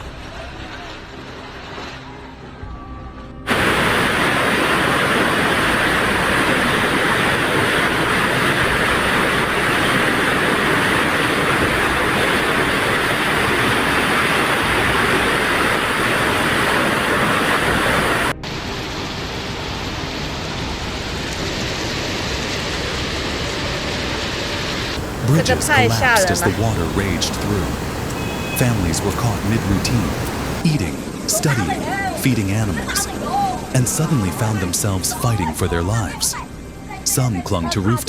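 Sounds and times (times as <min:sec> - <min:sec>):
floodwater rushing: 0:03.5 - 0:18.2, 0:25.0 - 0:30.6.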